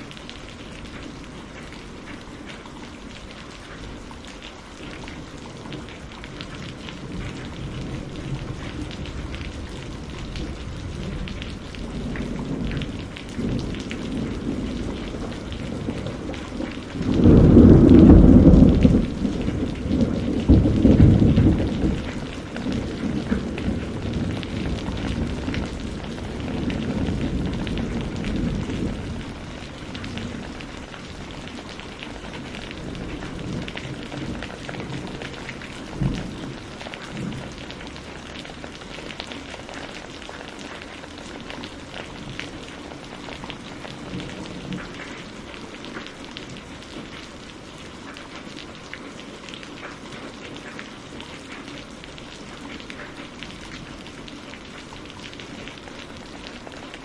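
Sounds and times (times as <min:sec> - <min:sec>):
rain falling: 0:00.0 - 0:57.0
low thunder rumble: 0:05.8 - 0:38.7
sharp thunder crack: 0:17.2 - 0:22.2.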